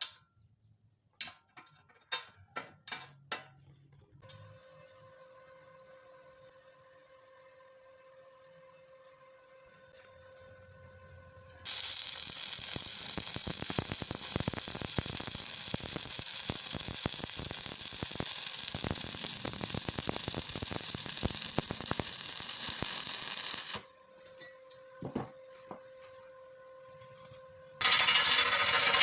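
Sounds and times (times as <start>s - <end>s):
welding arc crackling and hissing: 11.6s - 23.9s.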